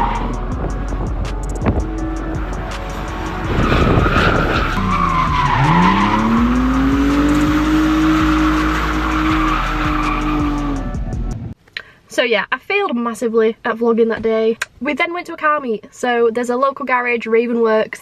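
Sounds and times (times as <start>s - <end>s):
car engine revving: 0.0s - 11.5s
tyres squealing: 2.1s - 10.9s.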